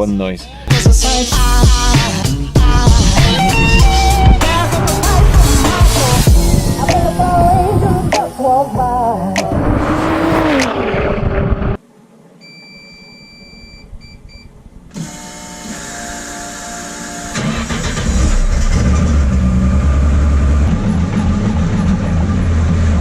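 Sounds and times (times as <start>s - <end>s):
background music: 0.4s - 9.5s
short electronic beeps: 12.4s - 14.5s
race car engine starting and idling: 16.9s - 23.0s.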